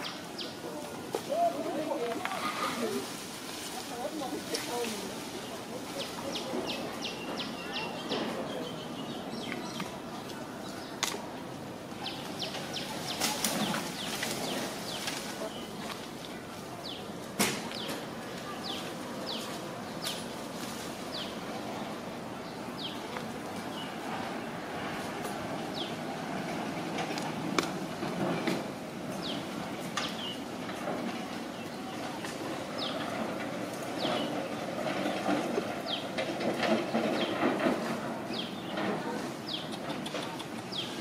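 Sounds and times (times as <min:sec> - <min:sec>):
steady outdoor hiss: 0:00.0 - 0:41.0
bird chirping: 0:06.0 - 0:11.0.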